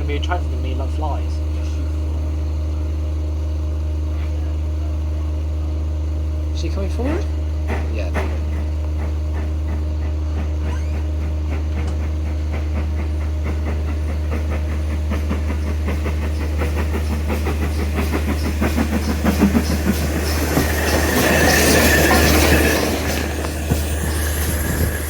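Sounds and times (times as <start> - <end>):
low train drone: 0.0 - 25.0
train wheels clicking over rail joints: 6.6 - 25.0
high wheel squeal: 10.4 - 11.3, 15.6 - 25.0.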